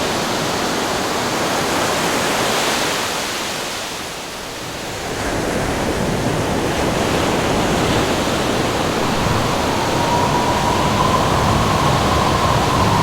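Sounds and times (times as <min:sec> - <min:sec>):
wind howling: 0:06.8 - 0:13.0
surf rushing: 0:06.9 - 0:13.0.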